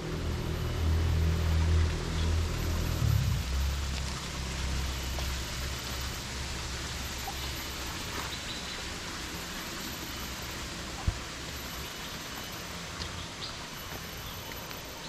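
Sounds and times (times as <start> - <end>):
low rumble: 0.0 - 7.0
steady hiss: 0.0 - 15.0
faint bird or insect chirps: 8.2 - 10.5.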